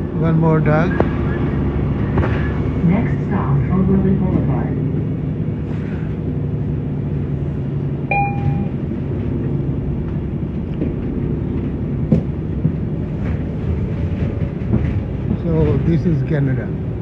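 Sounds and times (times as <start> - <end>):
low rumble of moving vehicle: 0.0 - 17.0
short electronic beep: 8.1 - 8.8.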